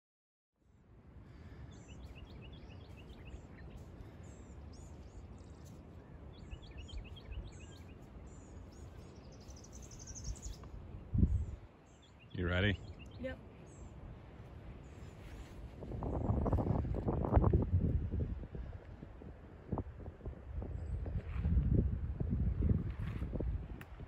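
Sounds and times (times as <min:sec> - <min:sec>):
steady low rumble: 0:00.8 - 0:24.0
birds calling: 0:01.3 - 0:15.4.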